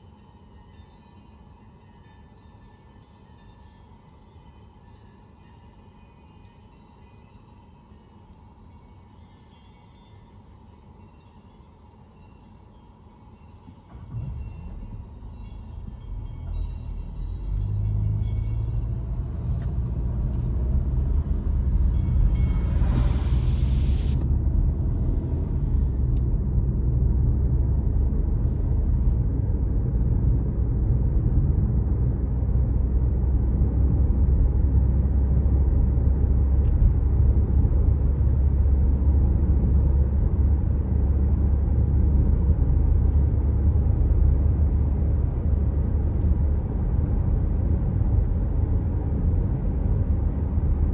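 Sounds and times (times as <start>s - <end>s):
car engine and tyres rumbling: 13.7s - 50.9s.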